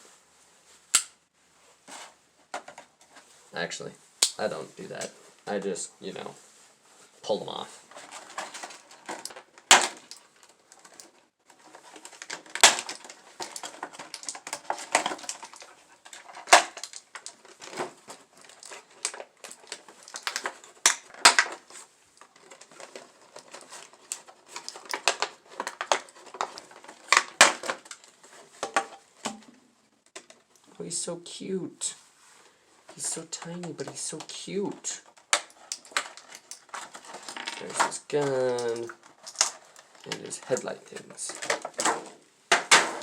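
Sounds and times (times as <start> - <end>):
plastic packaging clicks and crinkles: 7.5 - 30.7, 32.9 - 43.0.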